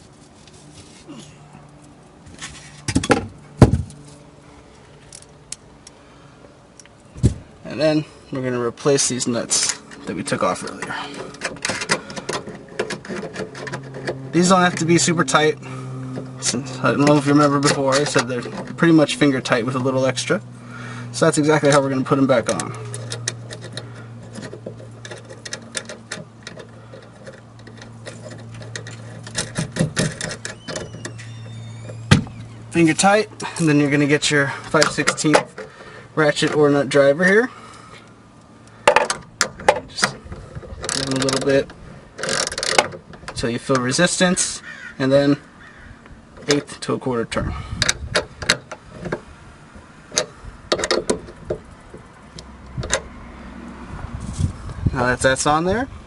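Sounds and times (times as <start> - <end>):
nuts threaded onto bolts clicking: 8.9 - 20.1, 21.2 - 44.5, 47.8 - 53.1
hand ratchet clicking: 40.7 - 41.5, 42.2 - 43.0.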